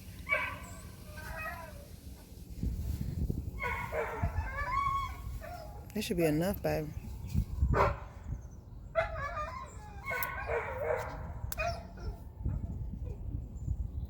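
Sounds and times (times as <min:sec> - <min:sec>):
dog barking and yipping: 0:00.2 - 0:01.8, 0:03.6 - 0:05.9, 0:07.7 - 0:08.1, 0:09.0 - 0:12.2.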